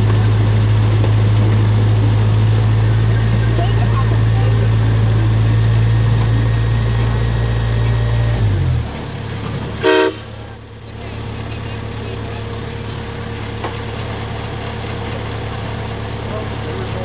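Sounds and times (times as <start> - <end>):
train engine idling: 0.0 - 17.0
train whistle toot: 9.8 - 10.5.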